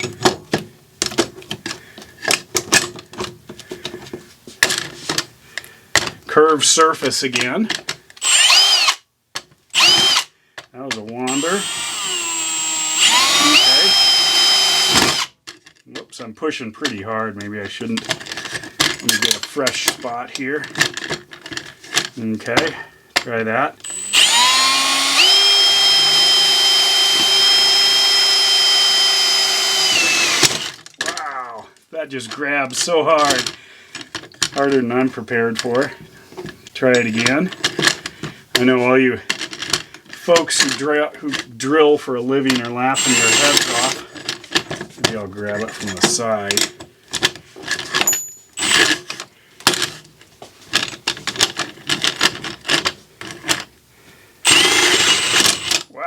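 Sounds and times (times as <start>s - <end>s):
power drill whining into steel: 8.2s - 9.0s, 9.7s - 10.3s, 11.2s - 15.4s, 23.8s - 30.8s, 43.0s - 44.0s, 48.0s - 49.1s, 54.4s - 55.9s.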